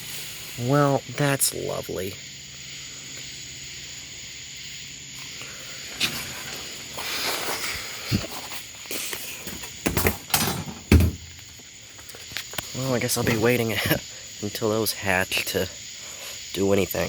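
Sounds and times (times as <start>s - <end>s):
steady hiss: 0.0s - 17.0s
knocks: 9.8s - 11.4s.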